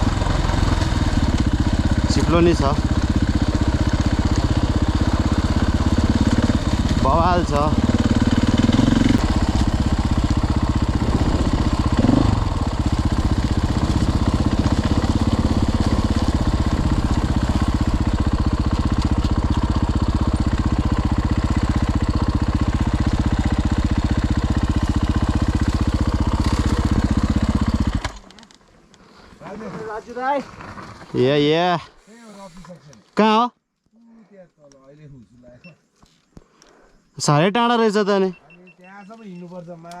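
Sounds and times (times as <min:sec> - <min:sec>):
dirt bike engine idling: 0:00.0 - 0:28.4.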